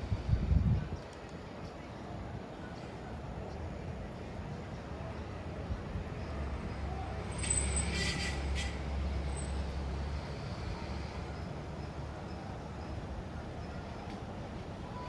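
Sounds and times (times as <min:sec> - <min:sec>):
large vehicle engine rumble: 0:03.0 - 0:15.0.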